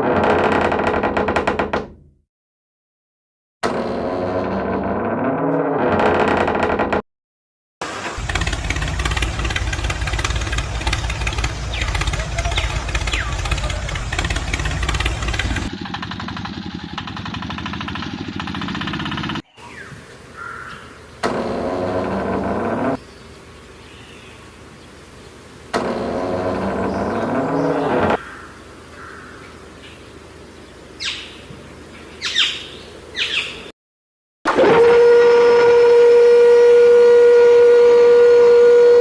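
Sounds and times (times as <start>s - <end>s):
small motor running: 8.2s - 19.4s.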